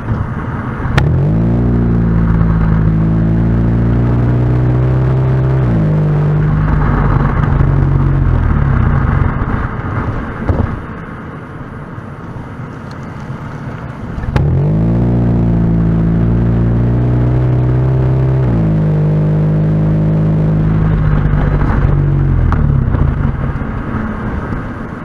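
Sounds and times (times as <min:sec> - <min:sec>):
car engine droning: 0:00.0 - 0:25.0
road noise: 0:00.0 - 0:25.0.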